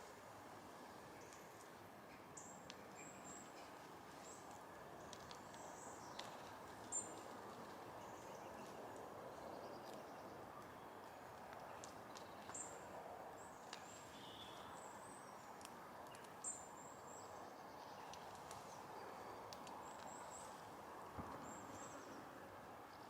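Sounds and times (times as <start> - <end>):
faint sharp clicks: 1.3 - 2.9, 4.4 - 7.3, 11.4 - 12.7, 18.0 - 18.8, 19.5 - 20.5
small birds calling: 9.4 - 23.0.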